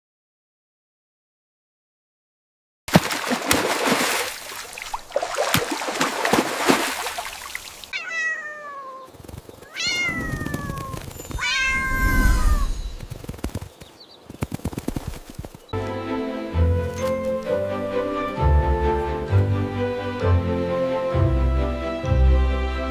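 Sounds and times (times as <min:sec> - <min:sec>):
cat meowing: 0:07.9 - 0:09.1, 0:09.7 - 0:12.8.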